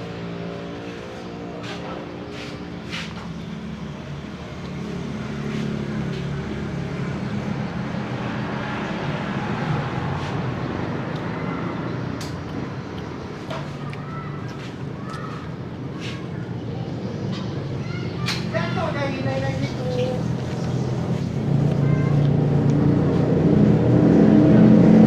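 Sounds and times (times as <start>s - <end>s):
vehicle engine running: 0.0s - 17.7s, 18.6s - 25.0s.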